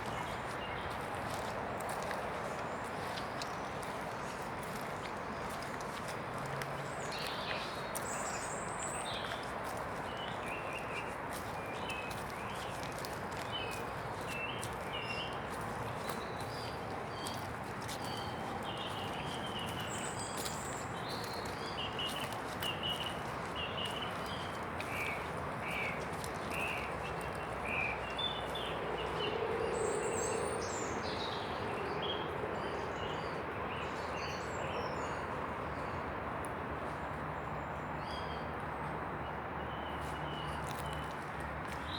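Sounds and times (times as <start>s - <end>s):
wind through trees: 0.0s - 41.9s
small birds chirping: 6.8s - 35.2s.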